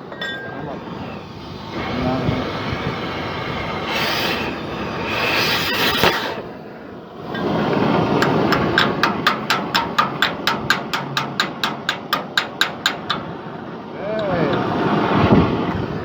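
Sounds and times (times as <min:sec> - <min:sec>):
steady background noise: 0:00.0 - 0:16.0
rapid sharp knocks: 0:08.1 - 0:13.6.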